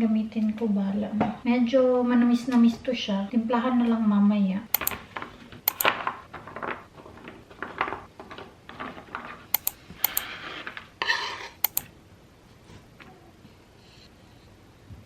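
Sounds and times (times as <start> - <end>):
utensils clicking and tapping: 4.8 - 5.0, 5.7 - 6.0, 9.5 - 10.3, 11.6 - 11.9.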